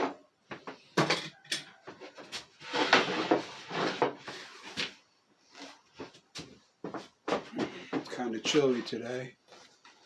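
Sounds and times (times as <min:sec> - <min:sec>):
wood scraping against wood: 0:02.5 - 0:06.1.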